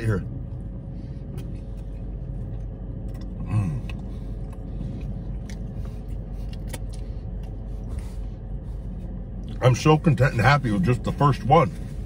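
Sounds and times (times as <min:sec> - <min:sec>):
car cabin hum: 0:00.0 - 0:12.0
man chewing: 0:00.4 - 0:09.6.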